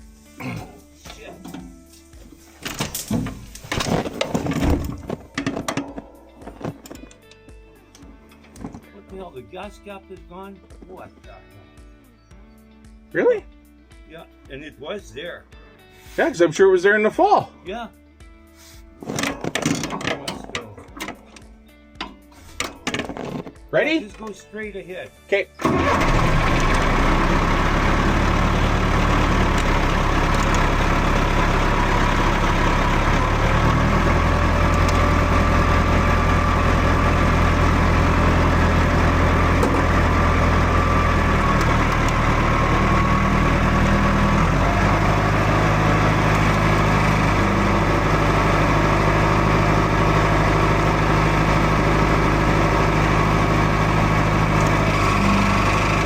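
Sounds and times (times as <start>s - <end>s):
tractor engine running: 1.1s - 10.0s, 19.0s - 23.6s, 25.6s - 56.0s.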